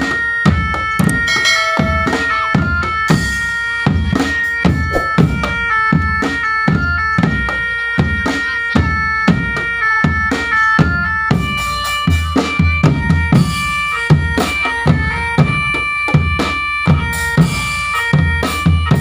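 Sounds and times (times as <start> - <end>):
reedy wind melody: 4.8 - 5.9
bass drum and snare beat: 4.9 - 5.8.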